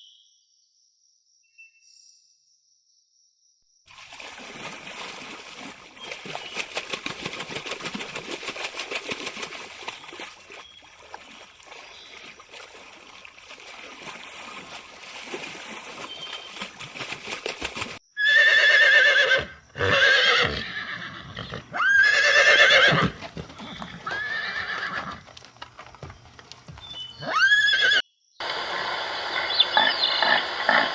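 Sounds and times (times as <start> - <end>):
horse whinnying: 18.2 - 25.2, 27.2 - 28.0.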